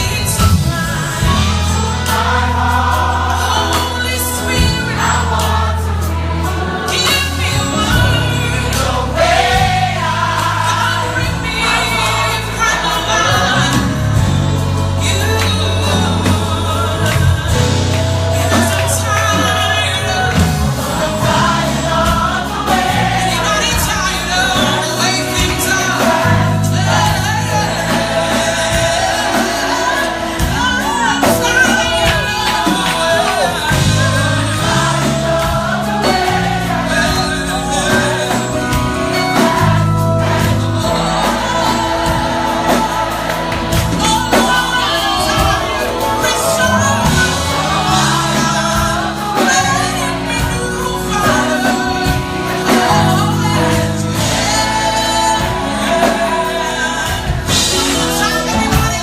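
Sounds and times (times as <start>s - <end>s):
bass notes: 0.0s - 59.0s
drums: 0.0s - 59.0s
gospel choir singing: 0.0s - 59.0s
lead voice singing: 0.0s - 59.0s.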